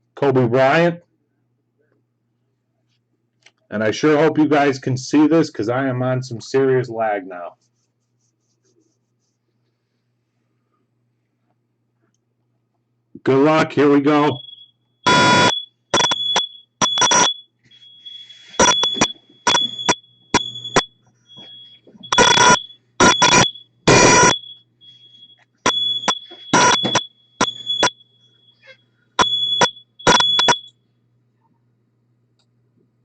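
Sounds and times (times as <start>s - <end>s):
loud alarm buzzing blasts: 14.2s - 17.4s, 18.0s - 28.6s, 29.2s - 30.7s
high-pitched alarm beeping: 14.2s - 30.8s.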